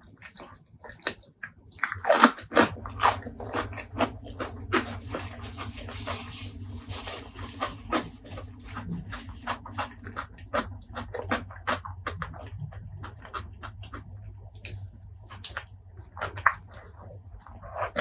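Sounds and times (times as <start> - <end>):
wet chewing and lip smacking: 0.2 - 5.6, 7.6 - 18.0
steady low hum: 1.7 - 18.0.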